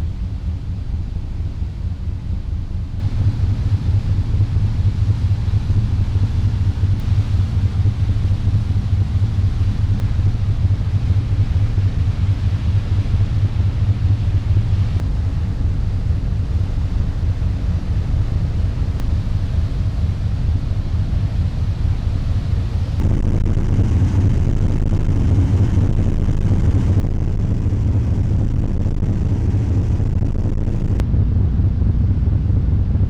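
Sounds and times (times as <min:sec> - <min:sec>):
wind noise: 0:03.0 - 0:33.0.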